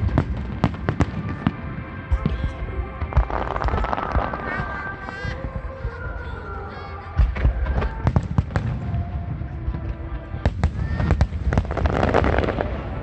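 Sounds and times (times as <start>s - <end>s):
fireworks booming and cracking: 0.0s - 6.4s, 7.1s - 13.0s.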